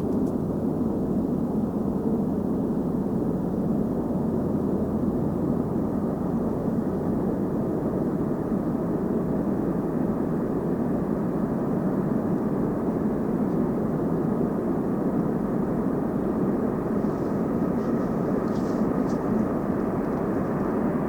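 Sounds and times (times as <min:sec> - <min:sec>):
train passing roar: 0:16.5 - 0:21.0.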